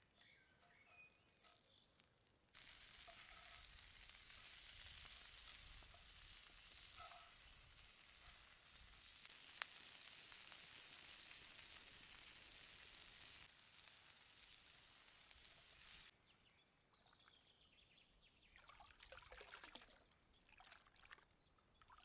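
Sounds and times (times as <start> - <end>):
faint bird chirps: 0.0 - 1.9
asparagus sizzling in a pan: 2.6 - 16.1.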